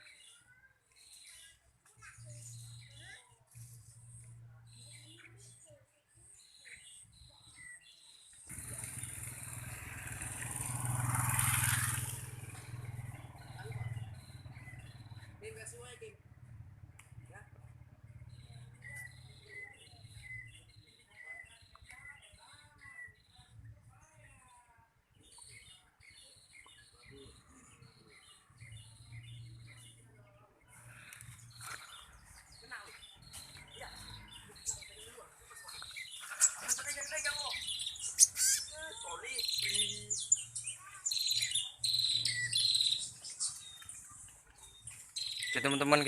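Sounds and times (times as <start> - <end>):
small songbirds chirping: 0.0 - 46.0
motorcycle engine humming: 8.5 - 20.4.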